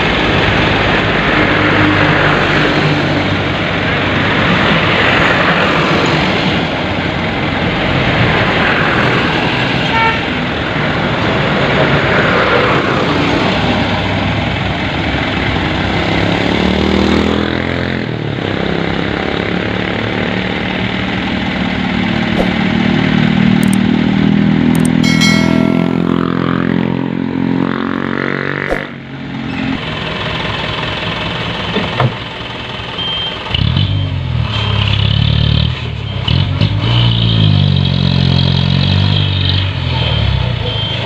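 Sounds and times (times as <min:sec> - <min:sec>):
diesel engine running: 0:00.0 - 0:16.8, 0:18.2 - 0:25.0, 0:25.8 - 0:36.7
sharp clicks: 0:23.6 - 0:23.8, 0:24.7 - 0:25.0
brief high tone: 0:24.9 - 0:27.0.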